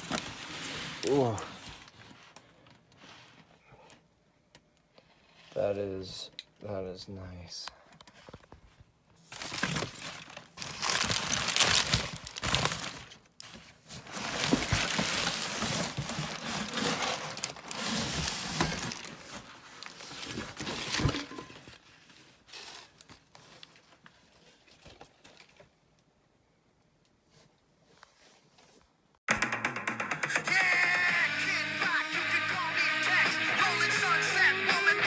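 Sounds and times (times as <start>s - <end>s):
packaging crinkling and rustling: 0.0s - 3.4s, 8.1s - 25.8s.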